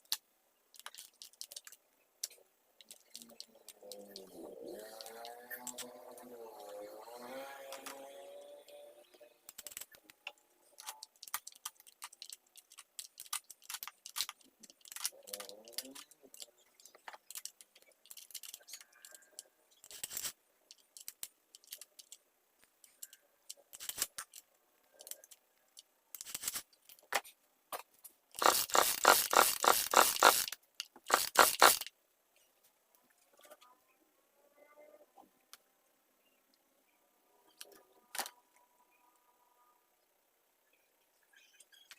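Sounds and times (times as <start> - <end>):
small hard parts clicking: 0.0 - 6.8, 9.4 - 31.9.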